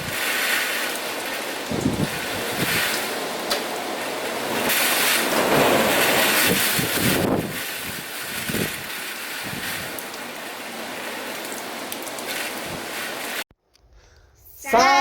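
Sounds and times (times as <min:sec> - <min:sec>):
strong wind gusting on microphone: 0:00.0 - 0:10.2, 0:12.3 - 0:13.4.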